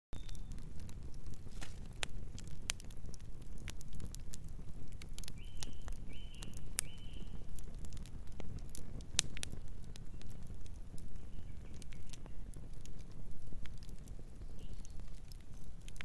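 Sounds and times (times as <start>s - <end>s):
wood fire crackling: 0.2s - 16.0s
distant bird calls: 5.4s - 7.4s.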